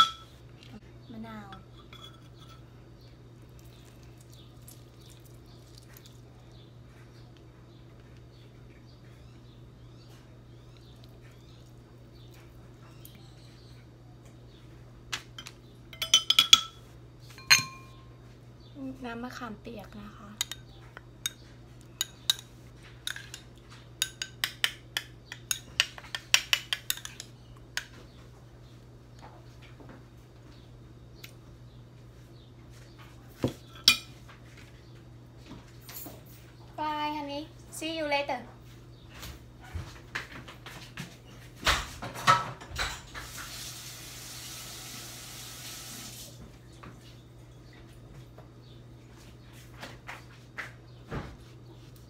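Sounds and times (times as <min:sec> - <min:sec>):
metal spoon clinking in ceramic bowl: 0:00.0 - 0:00.3, 0:01.5 - 0:02.6, 0:15.4 - 0:16.8, 0:17.4 - 0:18.0, 0:22.0 - 0:23.4, 0:24.0 - 0:27.3, 0:33.7 - 0:34.1
kitchenware clattering: 0:00.0 - 0:00.4, 0:01.5 - 0:02.7, 0:15.4 - 0:18.1, 0:20.4 - 0:27.9, 0:33.4 - 0:34.2
water running from tap: 0:43.1 - 0:46.4.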